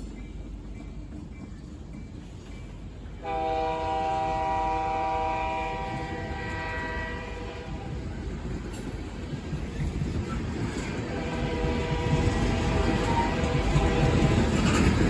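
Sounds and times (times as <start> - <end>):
train rumble: 0.0 - 15.0
locomotive air horn: 3.2 - 7.9, 11.1 - 14.4.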